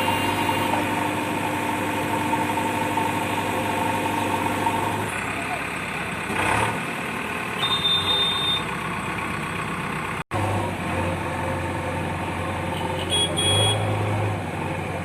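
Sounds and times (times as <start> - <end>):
diesel engine running: 0.0 - 15.0
short high-pitched beeps: 7.6 - 8.7.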